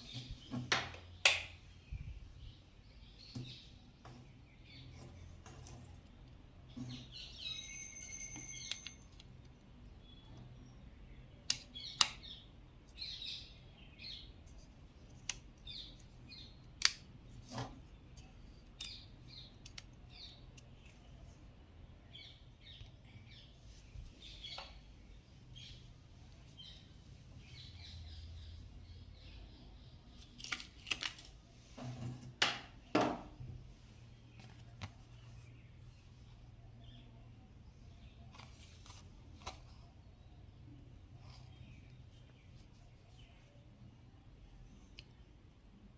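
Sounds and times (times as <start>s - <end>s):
bird chirps: 6.9s - 8.9s.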